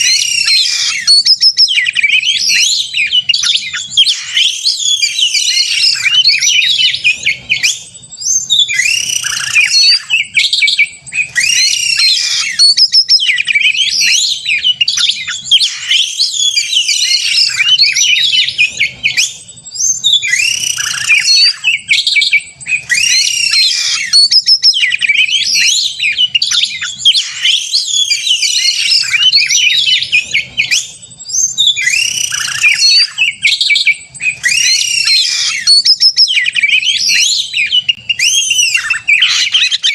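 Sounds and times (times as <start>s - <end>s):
bird singing whistles and chatter: 0.0s - 39.9s.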